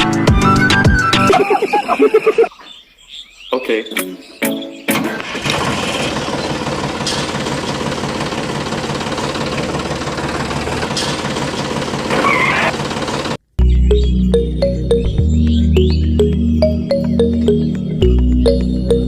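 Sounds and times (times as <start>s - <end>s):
music: 0.0s - 1.3s, 4.0s - 5.0s, 13.6s - 19.0s.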